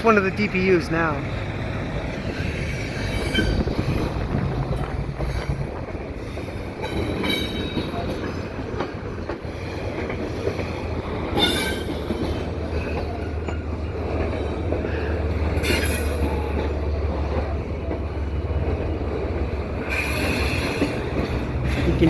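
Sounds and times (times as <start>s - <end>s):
diesel locomotive engine rumbling: 0.0s - 22.0s
wheel screeches: 2.4s - 5.7s, 15.6s - 16.6s, 19.8s - 21.1s.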